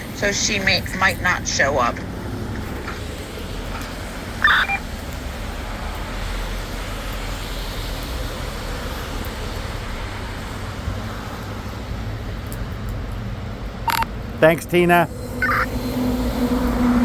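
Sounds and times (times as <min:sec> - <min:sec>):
rain: 0:00.0 - 0:17.0
road traffic: 0:00.0 - 0:17.0
short electronic beep: 0:04.4 - 0:04.8, 0:13.9 - 0:14.1, 0:15.4 - 0:15.7.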